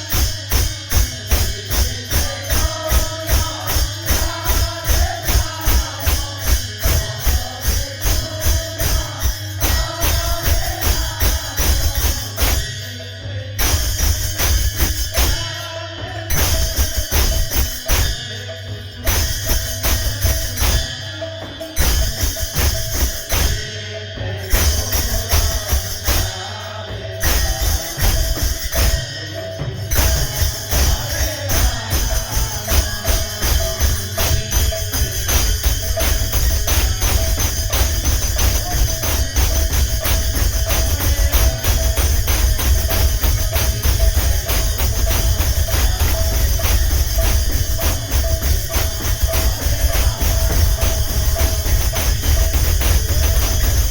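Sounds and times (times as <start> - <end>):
drum beat: 0.0 - 12.8, 13.6 - 53.9
jingling metal percussion: 0.0 - 53.9.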